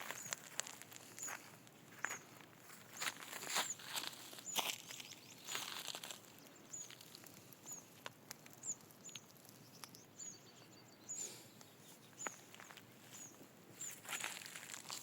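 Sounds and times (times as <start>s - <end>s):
small bird chirping: 1.1s - 14.8s
bird trill: 8.6s - 12.5s.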